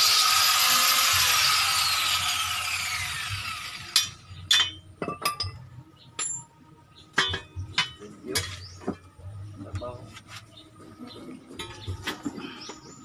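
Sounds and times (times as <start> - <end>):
power tool spinning down: 0.0 - 4.2.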